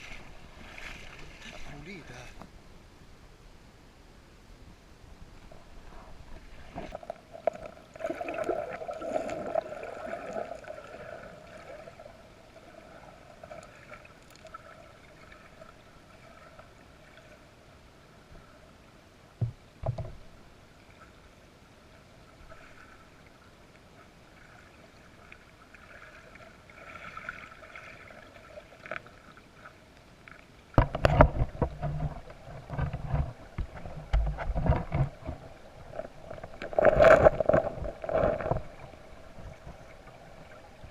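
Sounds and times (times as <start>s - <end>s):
creek water babbling over stones: 6.8s - 17.4s, 30.6s - 40.9s.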